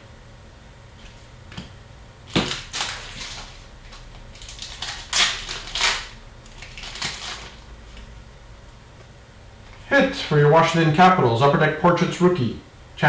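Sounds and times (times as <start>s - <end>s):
card packs rustling and crinkling: 2.3s - 8.1s.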